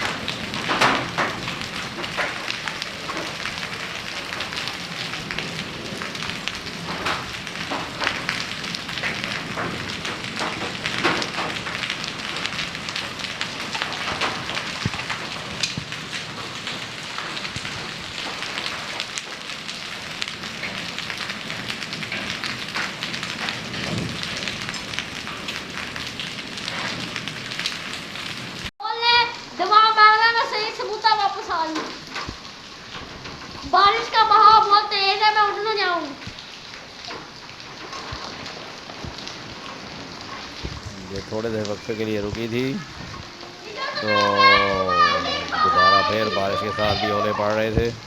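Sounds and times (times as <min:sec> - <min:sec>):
hailstones cracking on hard surfaces: 0:00.0 - 0:28.7, 0:29.7 - 0:48.0
heavy rain pouring: 0:00.0 - 0:48.0.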